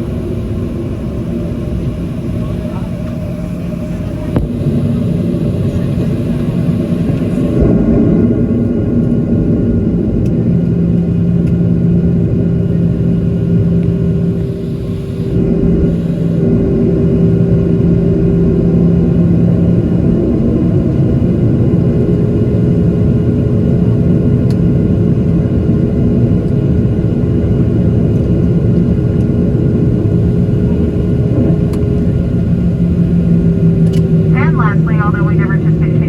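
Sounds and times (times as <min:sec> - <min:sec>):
aircraft cabin rumble: 0:00.0 - 0:17.1, 0:29.3 - 0:36.0
low hum: 0:33.8 - 0:36.0.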